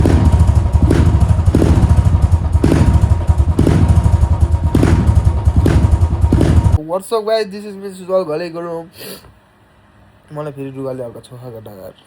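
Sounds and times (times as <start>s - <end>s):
motorcycle engine running: 0.0s - 6.8s.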